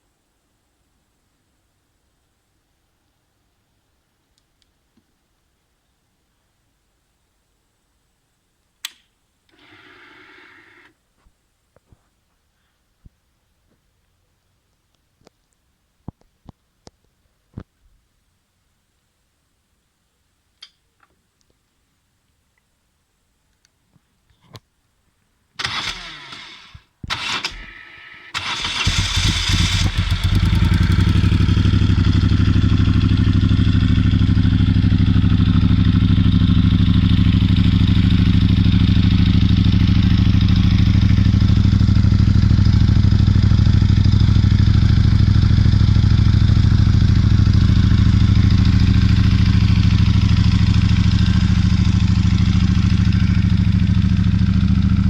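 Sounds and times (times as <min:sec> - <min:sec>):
starter motor cranking: 0:25.6 - 0:30.9
motorcycle engine idling: 0:28.4 - 0:55.0.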